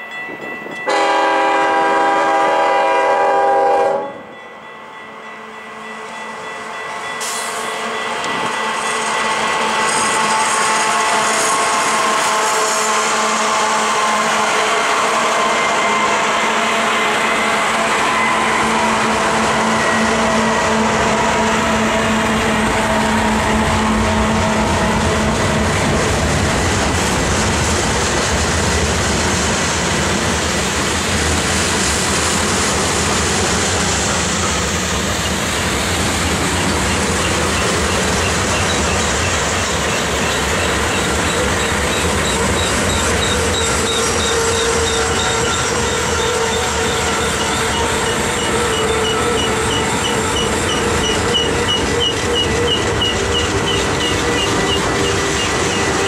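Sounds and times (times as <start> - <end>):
freight train wheels clattering: 7.2 - 12.9, 17.1 - 56.0
diesel locomotive low hum: 13.5 - 56.0.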